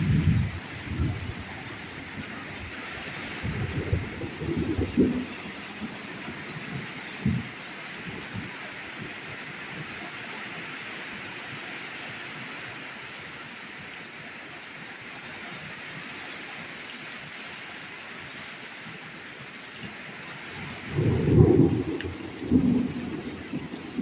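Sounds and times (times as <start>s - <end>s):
thunder rumbling: 0.0s - 9.2s, 20.5s - 24.0s
torrential rain pouring: 0.0s - 24.0s.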